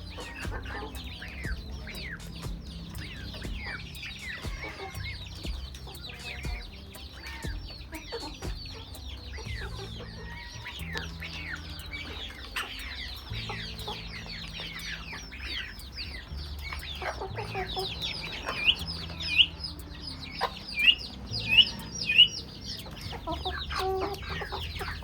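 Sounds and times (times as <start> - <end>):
chickens clucking and chirping: 0.0 - 25.0.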